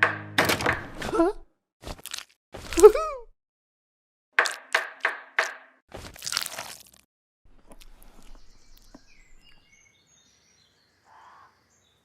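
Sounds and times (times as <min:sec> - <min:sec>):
birds chirping: 0:07.6 - 0:12.0.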